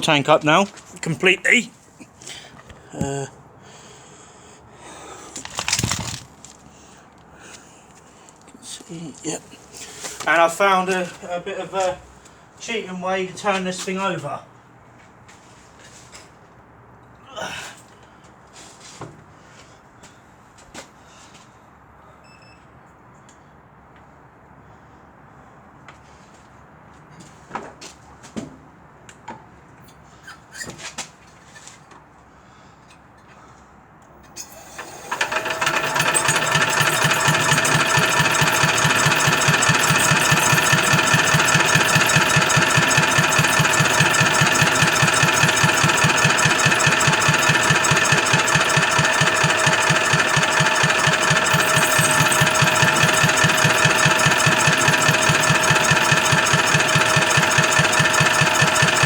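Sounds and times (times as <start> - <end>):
diesel engine turning over: 5.1 - 6.9, 34.3 - 59.0
steady whine: 35.1 - 59.0.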